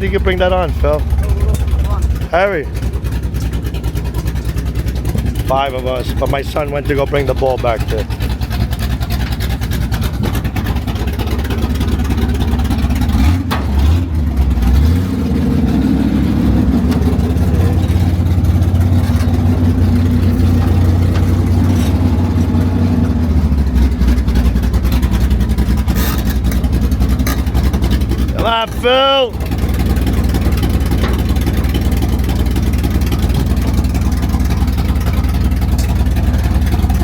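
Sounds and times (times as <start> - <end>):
truck engine revving: 0.0 - 37.0.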